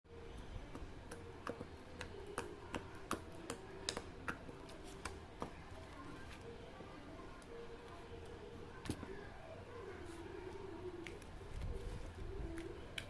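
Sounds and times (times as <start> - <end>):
soft clicks of slime handling: 11.0 - 11.3.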